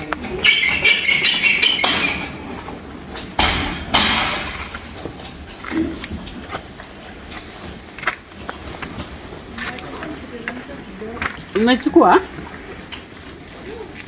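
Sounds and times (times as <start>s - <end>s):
knocks of movement: 0.0s - 5.5s
pigs squealing: 0.2s - 2.8s.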